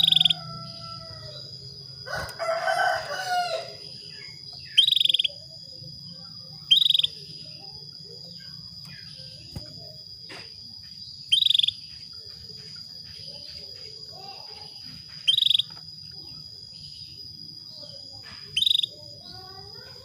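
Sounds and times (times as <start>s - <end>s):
rooster crowing: 0.0s - 4.0s
canary trill-chirps: 0.0s - 9.9s, 10.8s - 20.0s.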